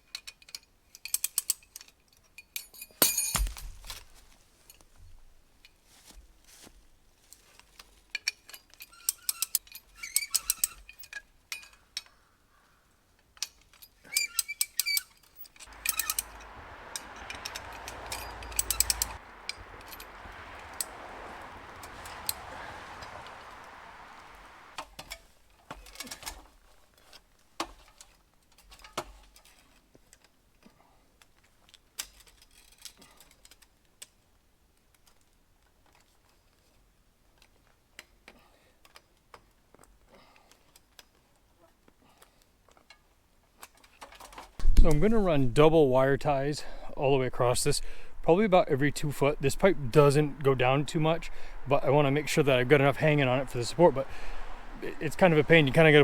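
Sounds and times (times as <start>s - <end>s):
ratchet clicking: 15.7s - 19.2s
rush of noise: 15.7s - 24.8s.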